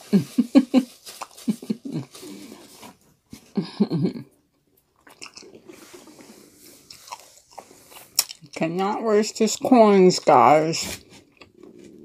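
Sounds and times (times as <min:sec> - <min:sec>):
chewing crispy fried chicken: 0:00.8 - 0:02.4, 0:04.8 - 0:08.6
wet mouth sounds: 0:05.0 - 0:08.6.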